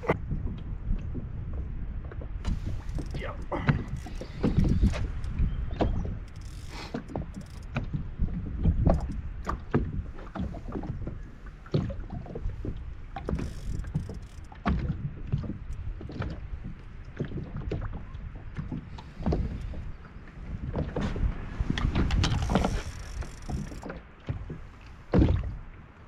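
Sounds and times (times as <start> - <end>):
steady low rumble: 0.0 - 13.2
gear clattering in plastic boat: 2.2 - 25.5.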